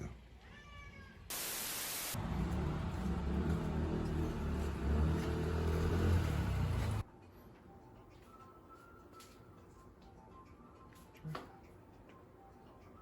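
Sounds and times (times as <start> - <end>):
motor running with low rumble: 2.2 - 7.0.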